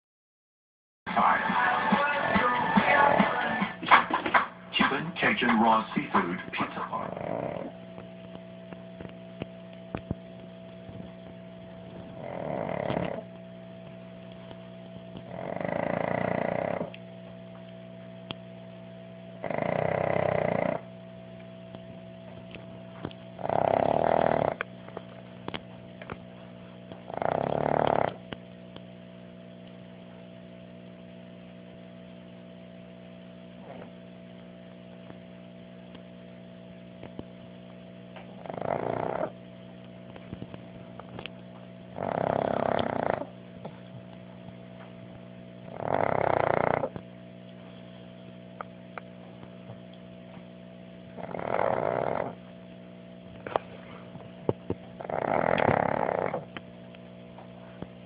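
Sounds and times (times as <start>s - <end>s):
dog snoring: 6.7s - 7.8s, 11.9s - 13.4s, 15.2s - 17.0s, 19.4s - 20.9s, 23.3s - 25.0s, 26.9s - 28.4s, 33.6s - 34.1s, 38.2s - 39.4s, 41.9s - 43.8s, 45.6s - 47.0s, 51.1s - 52.5s, 55.0s - 56.6s.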